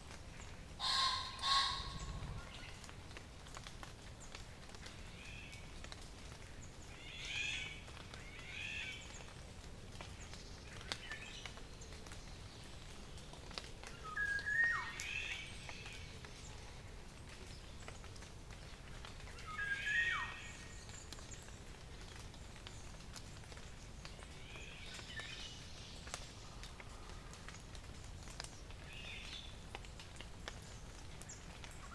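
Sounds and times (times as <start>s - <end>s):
steady low hiss: 0.0s - 31.9s
bird singing: 0.8s - 2.7s
faint bird calls: 0.8s - 2.8s.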